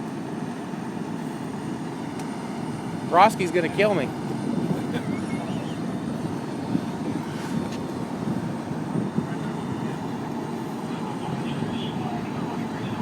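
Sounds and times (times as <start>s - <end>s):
heavy truck engine rumbling: 0.0s - 13.0s.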